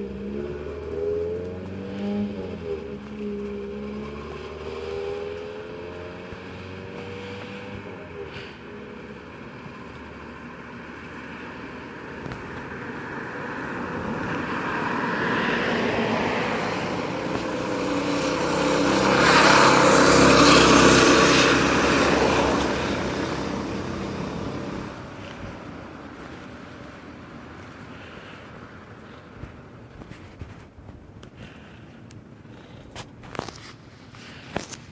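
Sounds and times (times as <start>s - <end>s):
mini bike engine passing by: 0.0s - 25.6s.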